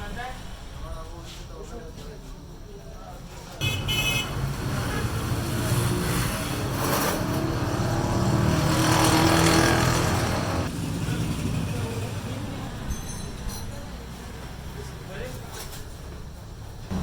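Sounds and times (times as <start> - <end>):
motorcycle engine revving: 3.6 - 12.9, 16.8 - 17.0.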